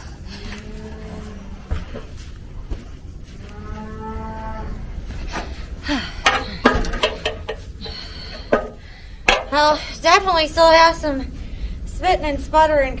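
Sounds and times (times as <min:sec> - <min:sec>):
cow mooing: 0:03.4 - 0:04.9.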